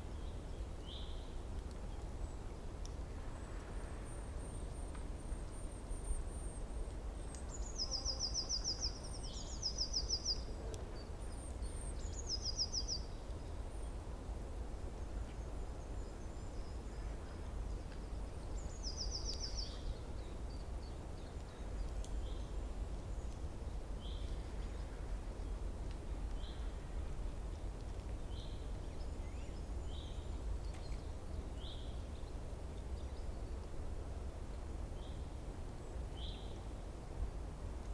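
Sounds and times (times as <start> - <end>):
songbirds trilling and chirping: 0.0 - 14.2, 14.9 - 36.7.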